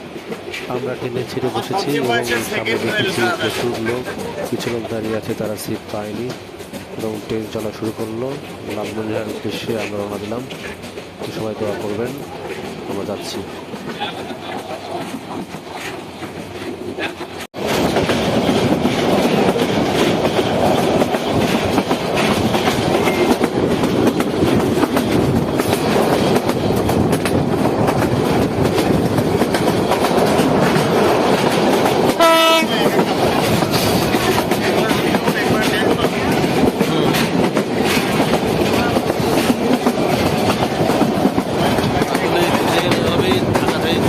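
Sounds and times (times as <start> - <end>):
train wheels clattering on rails: 0.0 - 44.0
train horn blast: 32.2 - 32.9.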